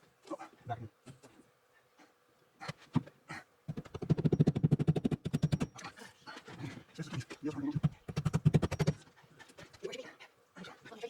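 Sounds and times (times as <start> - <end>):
rapid panting: 5.8 - 11.0.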